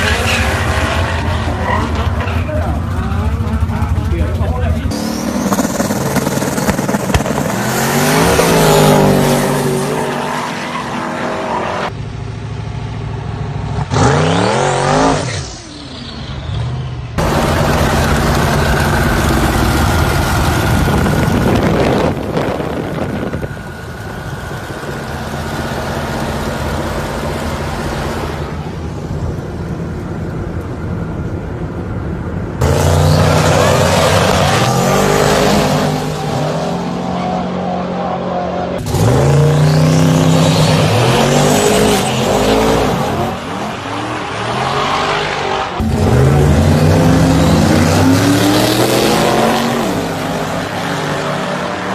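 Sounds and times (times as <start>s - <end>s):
car engine accelerating hard: 17.2s - 29.1s, 38.7s - 51.9s.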